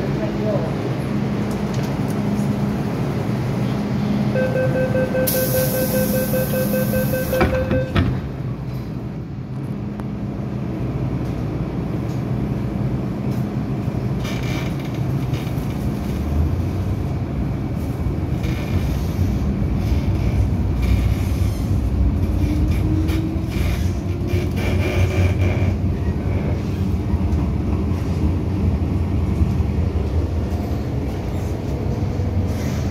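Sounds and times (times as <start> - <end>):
faint train whine: 0.0 - 14.0
train wheels and motors rumbling: 0.0 - 32.9.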